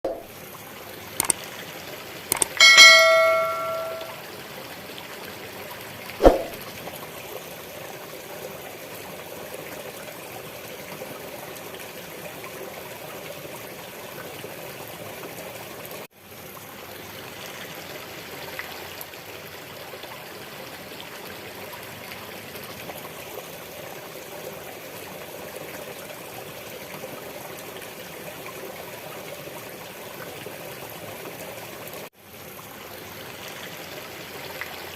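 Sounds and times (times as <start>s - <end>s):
bell ringing: 2.3s - 4.2s
short thump: 6.2s - 6.6s.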